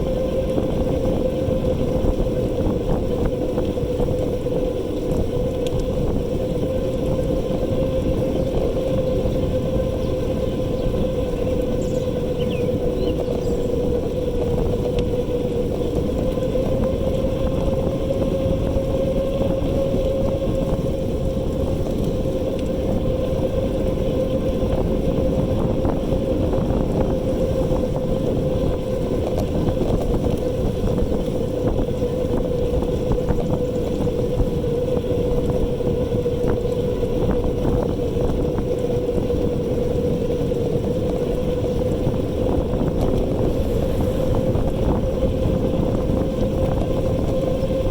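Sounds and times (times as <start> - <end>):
wind rumble on microphone: 0.0 - 47.9
electric motor whining: 36.3 - 47.9.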